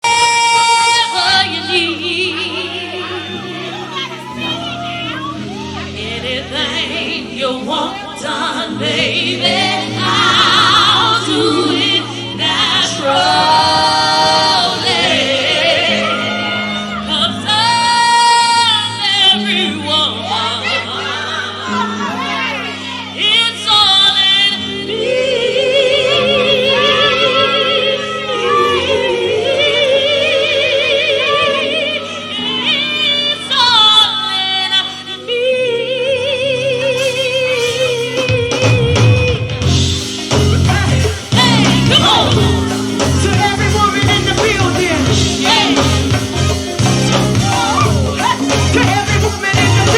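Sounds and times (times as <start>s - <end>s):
live band low chords: 0.0s - 49.9s
woman singing with vibrato: 0.0s - 49.9s.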